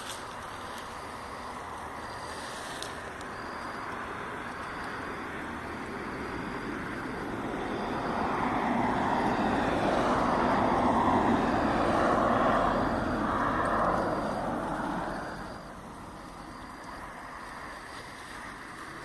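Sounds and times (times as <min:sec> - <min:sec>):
vehicle engine passing: 0:05.2 - 0:17.8.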